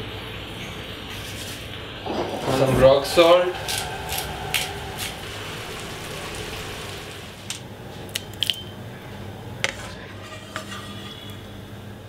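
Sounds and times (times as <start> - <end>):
pan hissing: 1.8 - 7.5
utensils clinking on a pan: 9.7 - 11.5.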